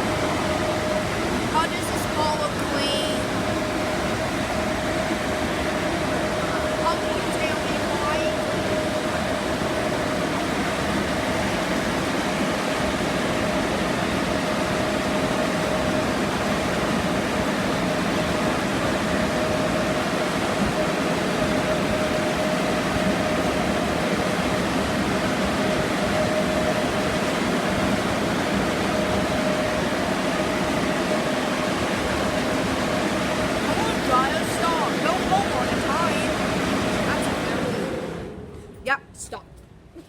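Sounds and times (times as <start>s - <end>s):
air dryer blowers running: 0.0s - 38.9s.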